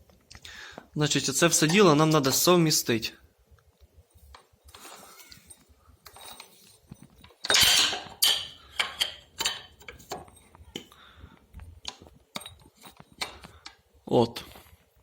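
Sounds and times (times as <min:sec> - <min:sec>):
metallic rattle: 0:04.2 - 0:10.6
spanner clinking on metal: 0:04.3 - 0:10.9.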